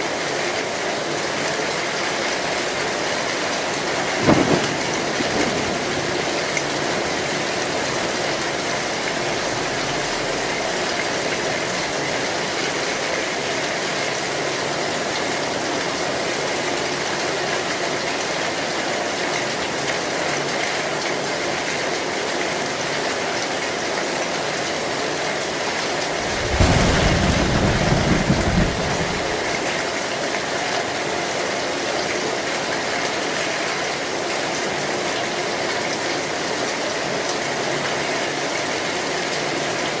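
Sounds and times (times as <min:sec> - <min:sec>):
heavy rain on a tin roof: 0:00.0 - 0:40.0
low roll of thunder: 0:03.8 - 0:12.7, 0:26.0 - 0:29.9.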